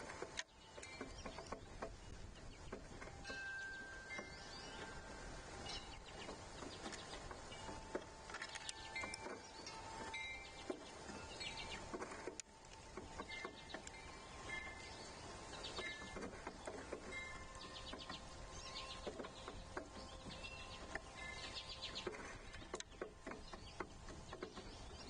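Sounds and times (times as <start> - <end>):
bird chirps: 0.4 - 25.0
chime-like ringing tones: 3.1 - 6.2, 7.5 - 11.7, 13.3 - 16.2.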